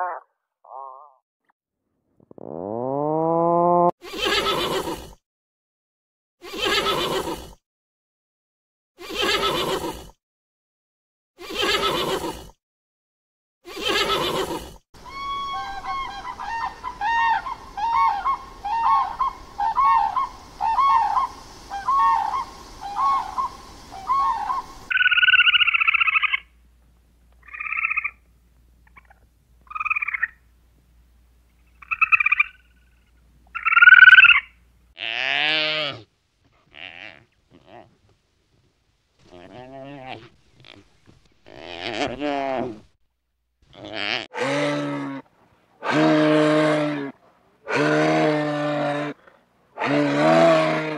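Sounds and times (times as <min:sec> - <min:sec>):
bird calls: 0:15.0 - 0:26.5.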